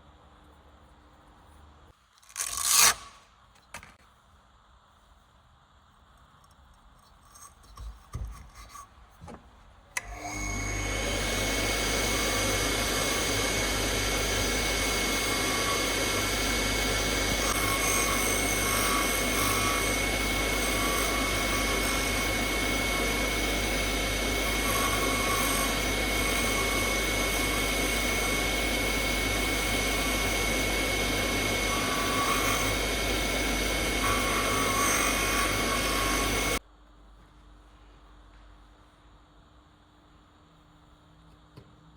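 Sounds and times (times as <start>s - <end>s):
electric power tool whining: 10.0s - 36.6s.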